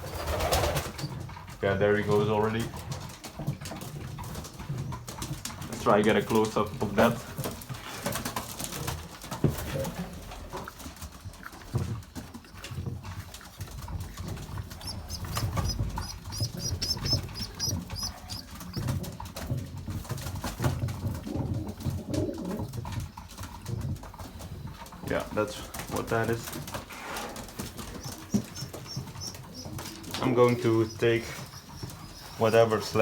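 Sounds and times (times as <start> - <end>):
pigeons cooing: 0.0 - 33.0
high quick peeping chirps: 14.6 - 18.8, 27.8 - 33.0.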